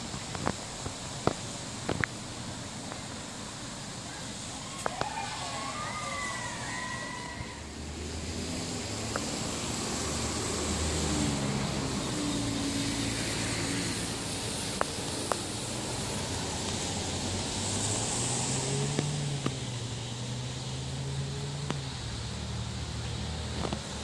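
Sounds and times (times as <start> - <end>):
outdoor background noise: 0.0 - 24.0
vehicle engine humming: 6.3 - 24.0.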